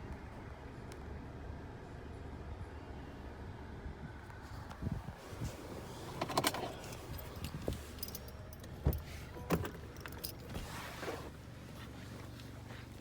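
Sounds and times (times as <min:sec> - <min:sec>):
metallic clicks and jingling: 0:06.2 - 0:10.5.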